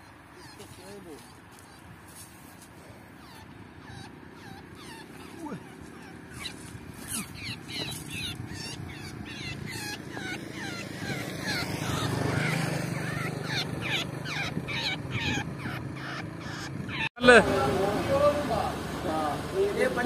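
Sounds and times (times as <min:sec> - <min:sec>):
bird chirping: 0:02.8 - 0:17.1.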